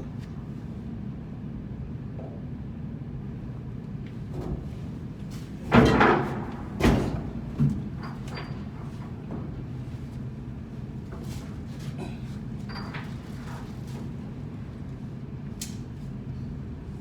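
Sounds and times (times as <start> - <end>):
low machinery hum: 0.0 - 17.0
heavy knocks and clatters: 5.6 - 9.9.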